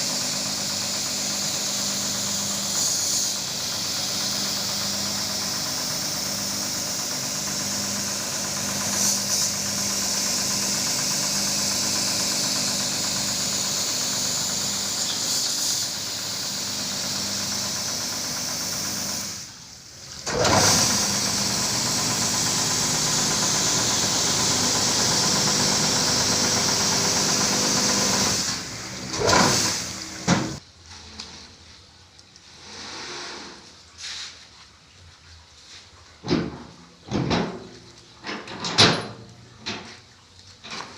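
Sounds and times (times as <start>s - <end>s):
carpet washer motor hissing: 0.0s - 30.6s.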